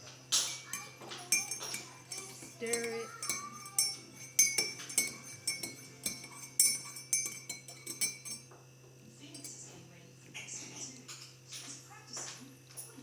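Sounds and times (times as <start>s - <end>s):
metal spoon clinking in cup: 0.3s - 8.6s, 9.2s - 9.8s.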